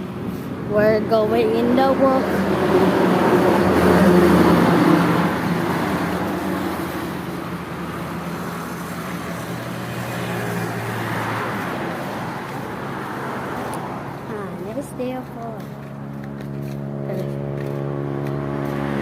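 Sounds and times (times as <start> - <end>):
vehicle engine hum and tyre noise: 0.0 - 19.0.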